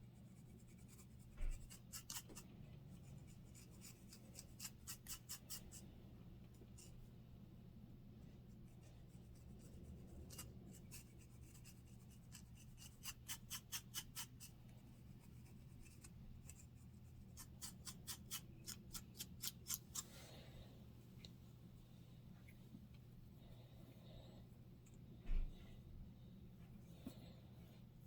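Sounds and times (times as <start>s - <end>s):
scratching scalp through hair: 0.2s - 5.9s, 8.5s - 20.1s.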